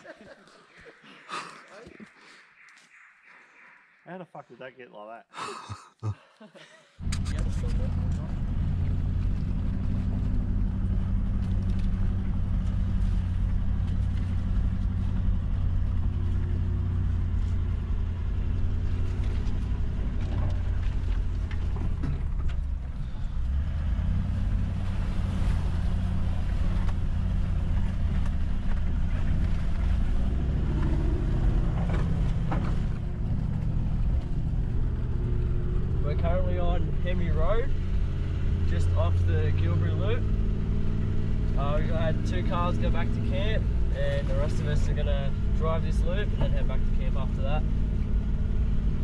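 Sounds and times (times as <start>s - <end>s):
vehicle engine running: 7.0s - 49.0s.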